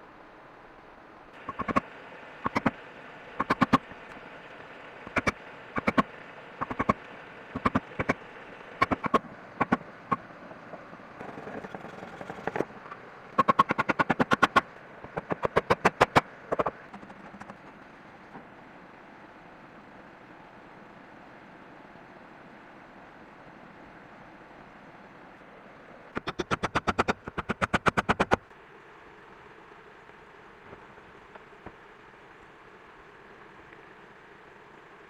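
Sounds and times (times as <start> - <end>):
tool knocking on bamboo: 1.5 - 1.8, 2.5 - 2.8, 3.4 - 3.8, 5.1 - 7.0, 7.6 - 8.2, 8.8 - 9.8, 13.4 - 17.6, 26.2 - 28.4.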